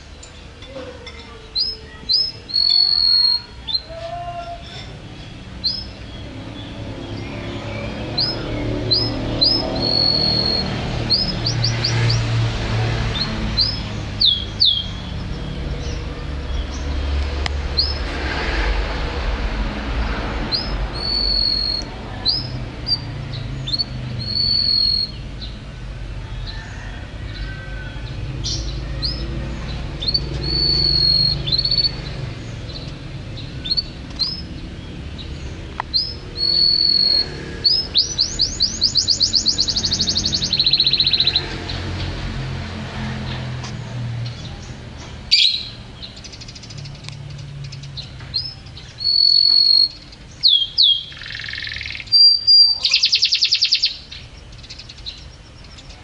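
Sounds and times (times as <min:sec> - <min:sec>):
songbird whistling: 0:01.6 - 0:03.9, 0:07.2 - 0:12.2, 0:20.6 - 0:23.1, 0:23.7 - 0:25.2, 0:30.0 - 0:32.0, 0:35.9 - 0:41.4, 0:45.3 - 0:45.8, 0:48.4 - 0:55.2.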